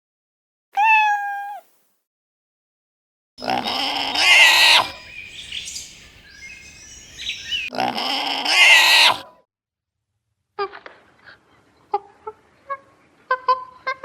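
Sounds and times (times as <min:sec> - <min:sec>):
animal harsh cry: 0:00.8 - 0:01.6, 0:03.4 - 0:05.2, 0:07.6 - 0:09.3
faint bird chirps: 0:03.4 - 0:07.7.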